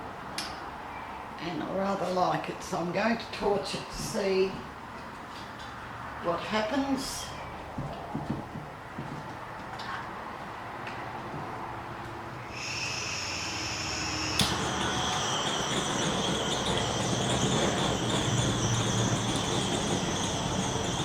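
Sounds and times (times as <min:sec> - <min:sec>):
butane torch flame hissing: 0:12.5 - 0:21.0.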